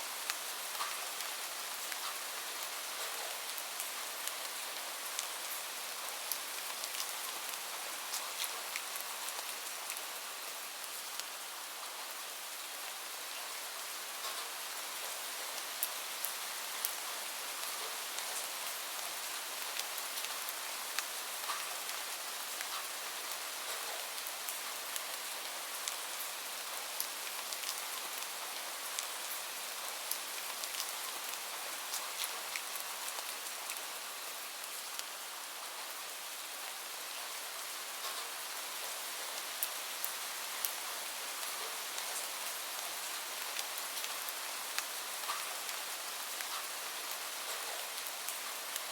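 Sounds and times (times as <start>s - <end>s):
steady rain falling: 0.0s - 48.9s
small sharp ticks: 44.8s - 45.5s.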